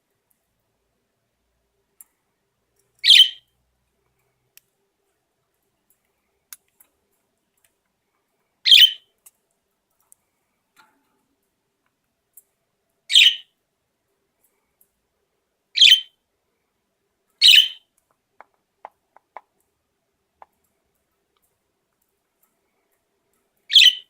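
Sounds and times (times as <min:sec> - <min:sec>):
budgerigar chirping: 0:03.0 - 0:03.4, 0:08.7 - 0:09.0, 0:13.1 - 0:13.5, 0:15.8 - 0:16.1, 0:17.4 - 0:17.8, 0:23.7 - 0:24.0.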